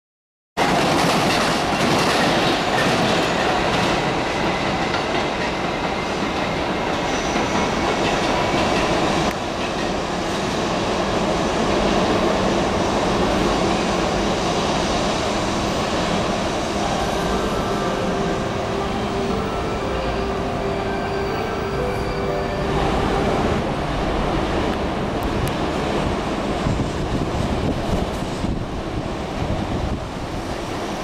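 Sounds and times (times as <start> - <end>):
wheels clacking over rail joints: 0.6 - 10.0
train running over rails: 0.6 - 31.0.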